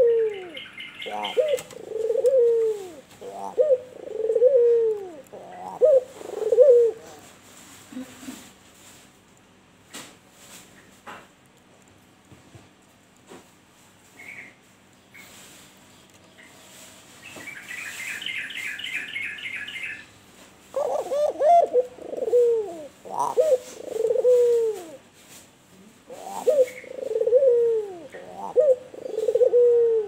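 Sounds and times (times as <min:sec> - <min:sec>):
dove cooing: 0:00.0 - 0:07.3, 0:20.7 - 0:25.1, 0:26.0 - 0:30.0.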